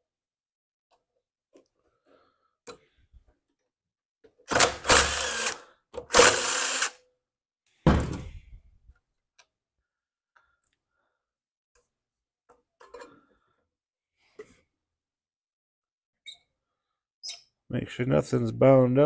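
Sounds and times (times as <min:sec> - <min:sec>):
power drill whirring: 0:04.5 - 0:07.0.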